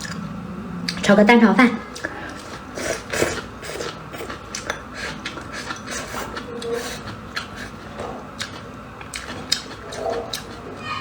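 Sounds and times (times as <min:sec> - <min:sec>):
chewing clicks and smacks: 0:03.8 - 0:10.7.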